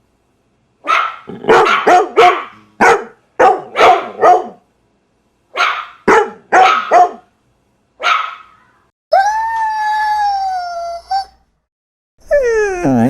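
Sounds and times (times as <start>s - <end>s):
dog barking: 0.8s - 4.6s, 5.5s - 7.3s, 8.0s - 8.6s.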